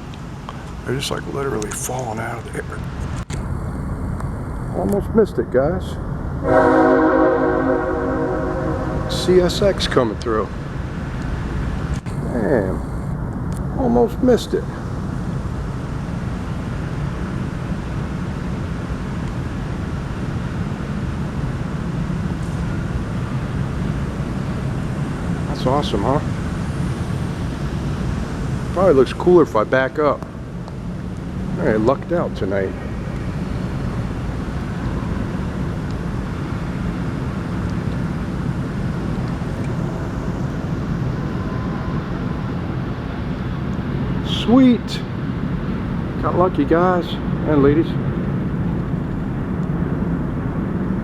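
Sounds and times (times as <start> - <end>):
freight train wheels rumbling: 0.0 - 51.0.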